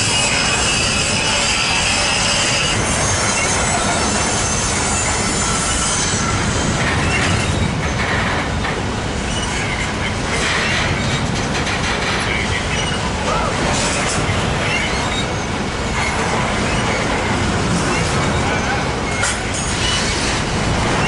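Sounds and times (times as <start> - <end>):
high-pitched wheel squeal: 0.0 - 7.7, 14.6 - 17.1
steel wheels rumbling on rail: 0.0 - 21.0.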